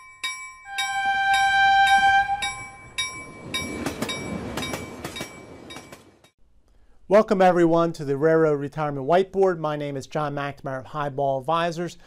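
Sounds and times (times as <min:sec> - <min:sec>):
ringing bell: 0:00.0 - 0:06.2
multi-tone train horn: 0:00.7 - 0:02.9
passing train rumble: 0:00.7 - 0:06.4
rail clicks clattering: 0:00.8 - 0:06.3.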